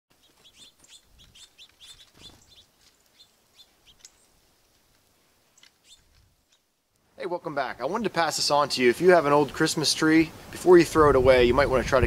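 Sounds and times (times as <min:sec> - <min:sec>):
small birds chirping: 0:00.1 - 0:06.9.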